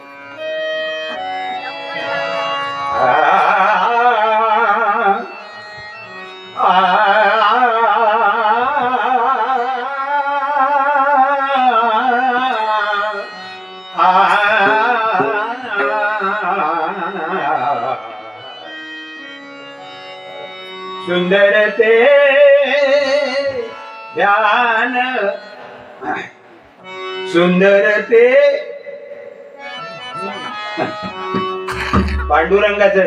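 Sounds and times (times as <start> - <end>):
harmonium tones: 0.0 - 33.0
man singing: 3.0 - 5.4, 6.5 - 13.4, 14.0 - 18.2, 21.0 - 25.6, 27.2 - 29.6, 31.7 - 33.0.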